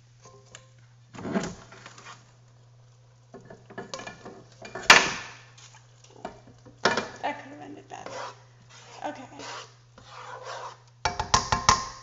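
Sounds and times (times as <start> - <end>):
utensils clattering against a pot: 3.3 - 5.4, 6.2 - 7.2.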